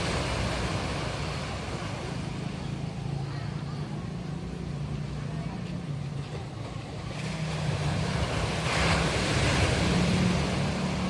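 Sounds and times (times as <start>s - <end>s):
ocean surf breaking: 0.0s - 3.4s, 5.8s - 11.0s.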